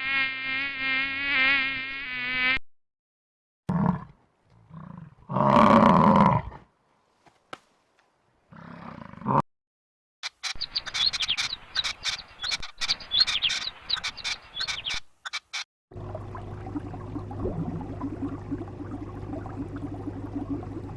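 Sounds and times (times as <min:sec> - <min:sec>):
roar: 0:03.7 - 0:06.8, 0:08.5 - 0:09.4
birds chirping rapidly: 0:10.2 - 0:15.6.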